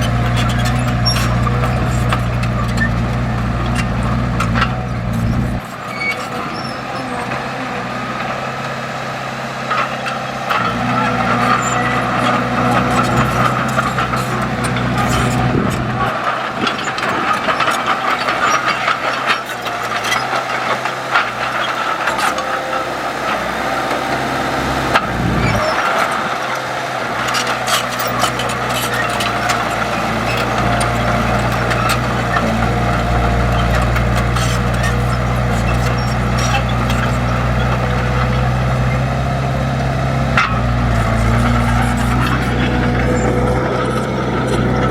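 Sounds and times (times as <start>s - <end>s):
diesel earthmoving machinery engines: 0.0s - 44.9s
clanks and knocks: 10.5s - 38.4s, 40.3s - 44.9s.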